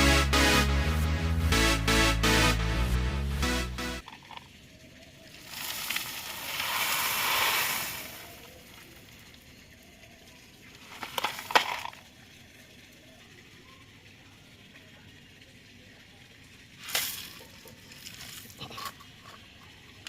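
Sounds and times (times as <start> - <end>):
gravel pouring and sliding: 4.0 - 12.8, 16.6 - 18.8.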